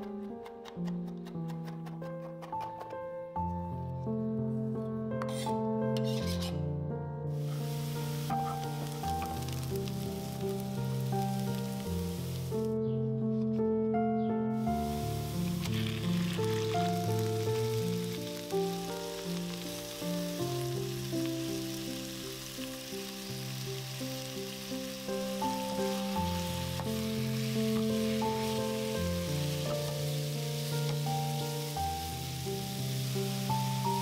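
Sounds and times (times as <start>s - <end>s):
background music: 0.0s - 34.0s
chicken frying in oil: 7.4s - 12.6s, 14.8s - 34.0s.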